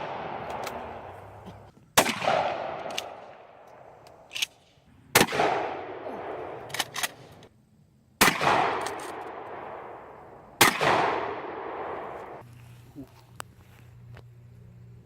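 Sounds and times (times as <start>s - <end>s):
gunshots with echo: 2.0s - 3.4s, 5.2s - 6.7s, 8.2s - 12.4s.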